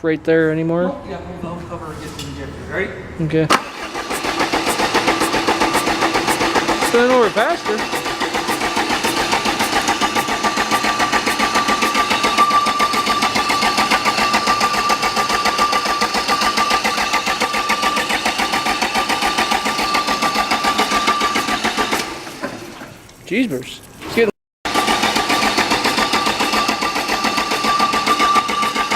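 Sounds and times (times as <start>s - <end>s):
starter motor whine: 3.5s - 22.6s, 24.7s - 28.9s
diesel engine cranking: 3.5s - 24.1s, 24.7s - 28.9s.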